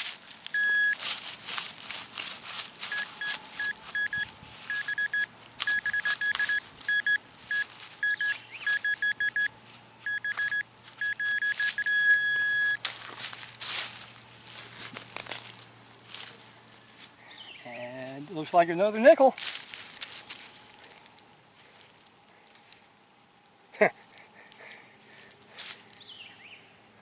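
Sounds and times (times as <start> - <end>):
digging in ground: 0.0 - 17.5
metal detector beeping: 0.5 - 1.2, 2.8 - 12.8.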